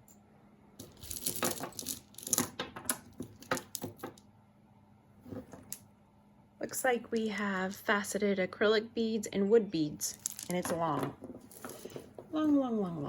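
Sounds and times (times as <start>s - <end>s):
jewelry beads clicking together: 10.1s - 10.7s.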